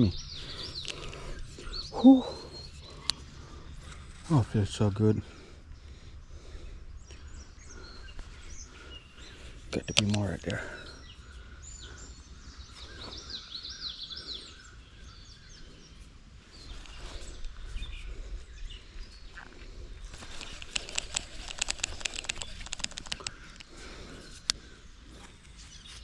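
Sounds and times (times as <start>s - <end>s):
birds chirping: 0.0s - 26.0s
outdoor background rumble: 0.0s - 26.0s
sharp clicks: 9.8s - 10.6s, 20.1s - 23.8s.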